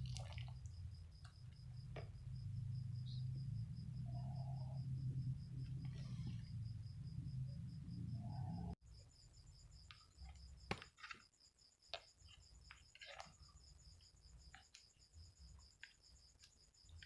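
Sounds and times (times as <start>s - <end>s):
insects chirping: 0.0s - 17.0s
low rumble: 0.6s - 8.8s.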